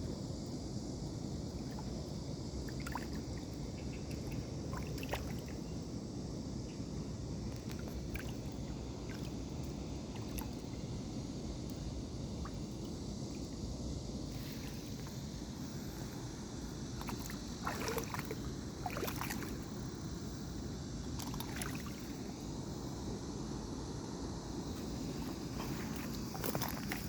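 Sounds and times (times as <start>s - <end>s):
river water splashing: 2.6s - 3.5s, 4.2s - 5.6s, 7.7s - 9.5s, 16.7s - 23.0s, 24.8s - 27.0s
low water rumble: 11.8s - 23.7s, 24.4s - 27.0s.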